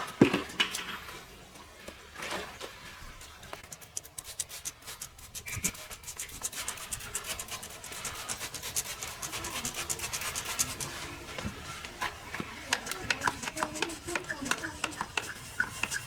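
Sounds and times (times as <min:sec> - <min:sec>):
brush scrubbing car surface: 0:03.2 - 0:16.0.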